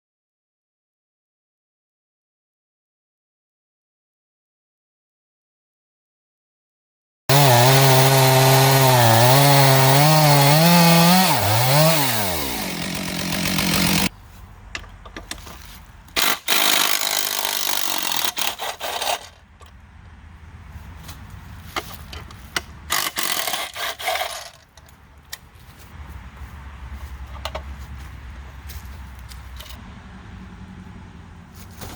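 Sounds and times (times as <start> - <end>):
chainsaw running: 7.3 - 14.1, 16.2 - 19.4, 22.9 - 24.6.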